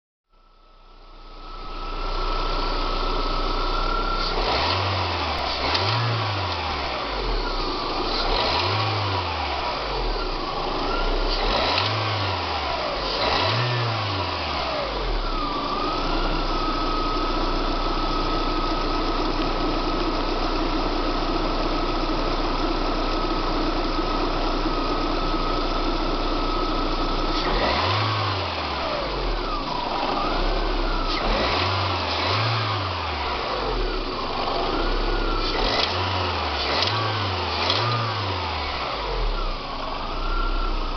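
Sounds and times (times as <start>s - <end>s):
car engine revving: 1.5s - 20.0s, 26.3s - 40.9s.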